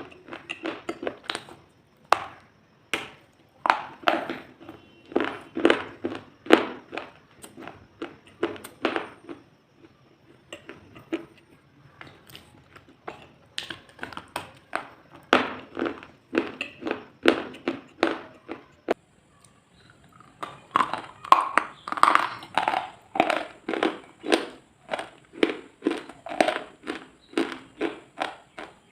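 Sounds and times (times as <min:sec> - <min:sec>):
brittle crunching: 0:12.0 - 0:18.6, 0:19.8 - 0:28.8.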